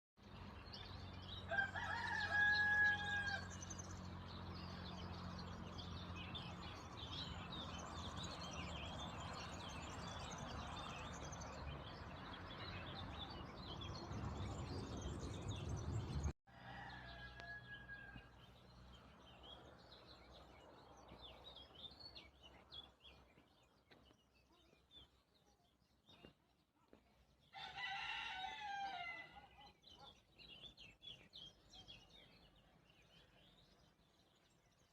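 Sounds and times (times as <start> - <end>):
rooster crowing: 1.5 - 3.6, 16.5 - 18.4, 27.6 - 29.4
small birds chirping: 18.1 - 27.7, 29.2 - 34.9.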